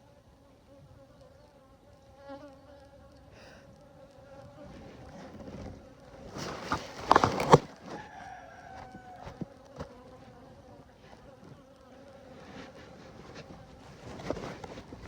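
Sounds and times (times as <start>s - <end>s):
honeybees buzzing: 0.0s - 15.0s
rustling and knocking near microphone: 4.4s - 15.0s.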